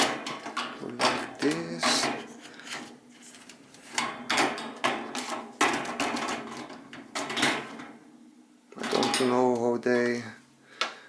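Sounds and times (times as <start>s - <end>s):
plastic knocks and rattles: 4.0s - 7.9s.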